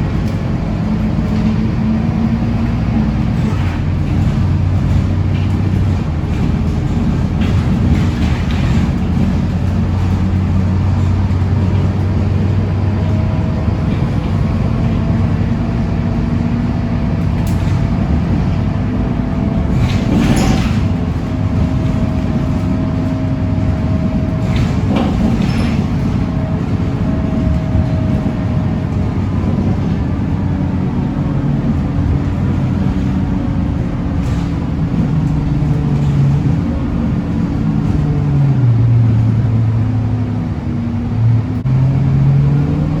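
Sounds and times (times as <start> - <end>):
bus diesel engine running: 0.0 - 43.0
drivetrain whine: 0.0 - 43.0.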